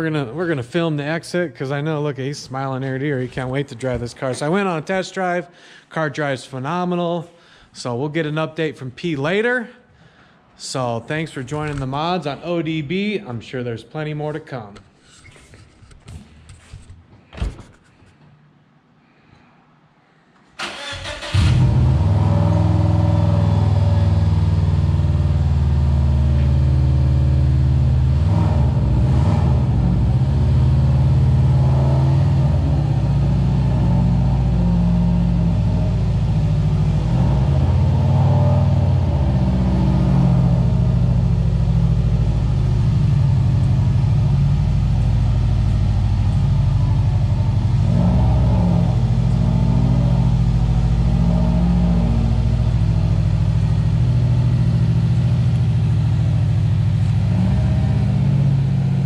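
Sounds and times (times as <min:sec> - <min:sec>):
car engine starting and running: 0:20.6 - 0:59.0.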